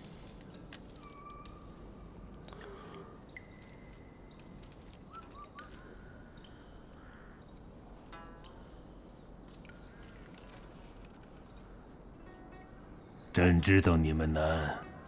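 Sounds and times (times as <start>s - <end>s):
birds chirping: 1.0s - 7.6s.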